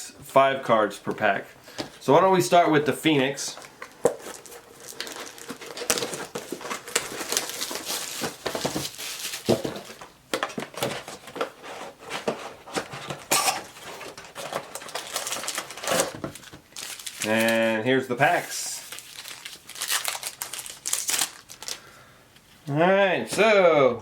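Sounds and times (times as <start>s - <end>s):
wrapper and cardboard crinkling: 3.6s - 21.9s.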